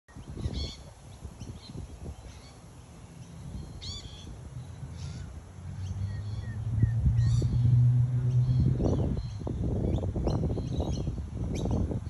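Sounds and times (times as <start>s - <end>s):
bird calls: 3.2s - 11.9s
low rumble: 4.6s - 9.4s.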